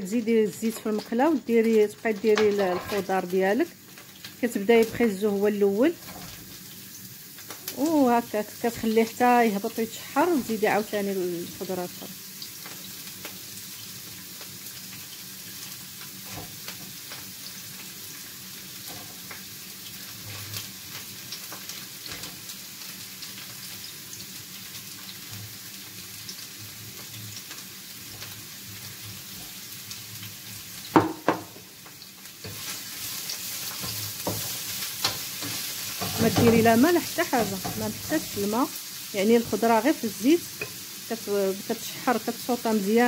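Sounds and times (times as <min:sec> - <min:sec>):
carrots sizzling in oil: 0:00.0 - 0:43.0
wooden spatula stirring a pan: 0:18.7 - 0:23.8, 0:31.8 - 0:38.6.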